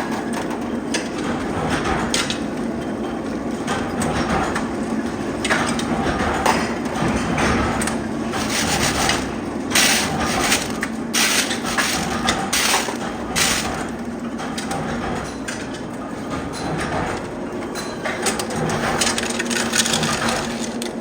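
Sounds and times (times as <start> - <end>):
factory machinery humming: 0.0 - 21.0
irregular clatter: 5.4 - 21.0.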